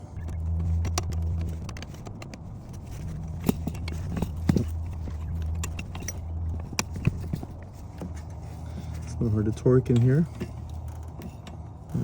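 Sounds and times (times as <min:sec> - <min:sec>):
low hum: 0:00.0 - 0:12.0
wrench clinking on metal: 0:03.3 - 0:07.4.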